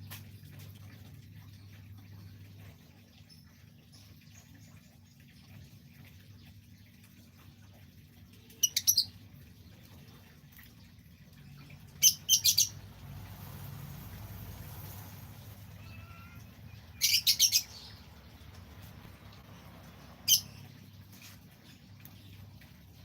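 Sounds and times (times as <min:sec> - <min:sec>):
bird chirping: 0:08.6 - 0:09.2, 0:12.0 - 0:12.8, 0:15.7 - 0:18.9, 0:20.0 - 0:20.7.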